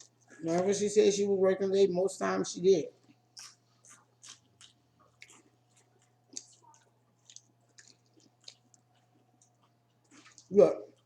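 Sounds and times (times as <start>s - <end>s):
chewing crispy food: 0.0s - 0.7s, 2.9s - 11.0s
faint steady hum: 0.0s - 11.0s.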